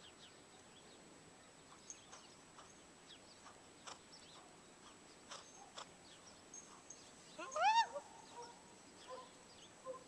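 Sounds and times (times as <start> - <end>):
distant small birds chirping: 0.0 - 10.0.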